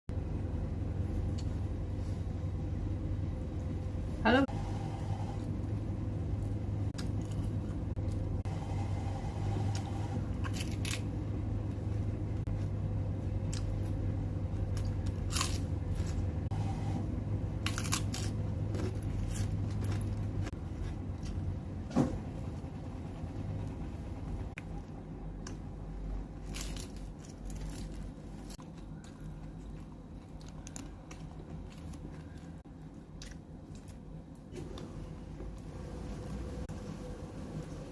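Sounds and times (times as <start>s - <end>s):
steady low hum: 0.1s - 37.9s
crisp bites and crunches: 10.4s - 11.1s, 14.6s - 16.3s, 17.6s - 21.4s, 26.3s - 34.1s.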